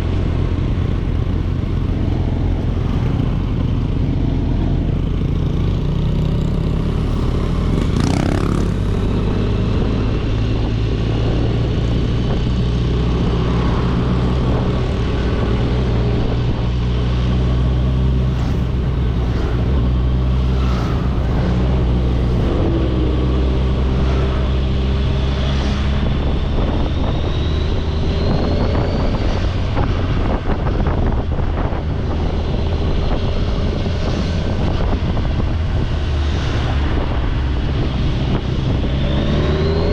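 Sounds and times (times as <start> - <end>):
motorcycle engine running: 0.0 - 25.3.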